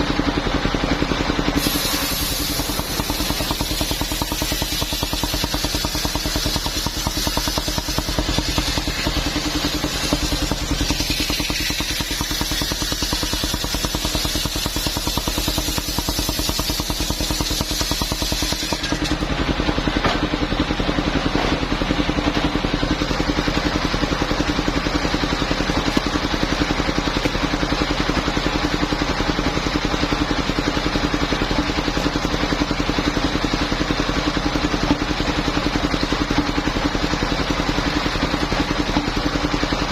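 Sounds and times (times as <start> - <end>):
sawmill engine hum: 0.0 - 39.9
saw blade hissing through wood: 1.6 - 18.9.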